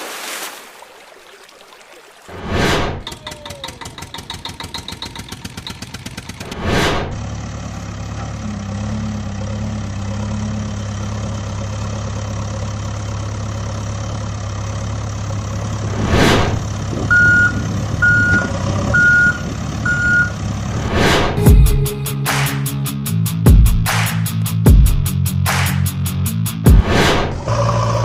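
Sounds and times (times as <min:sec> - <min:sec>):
truck engine idling: 0:03.1 - 0:20.8
truck reversing alarm beeping: 0:17.1 - 0:20.5.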